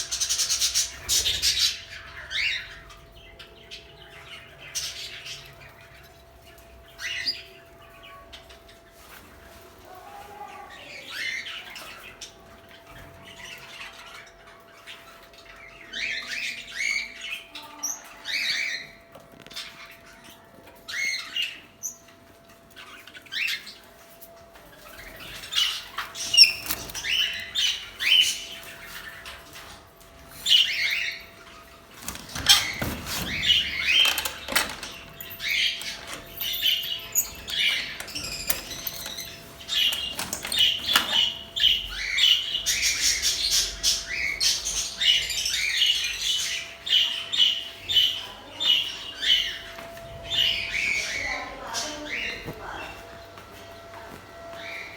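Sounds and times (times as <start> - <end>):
budgerigars chirping: 25.0 - 29.8, 30.4 - 53.1.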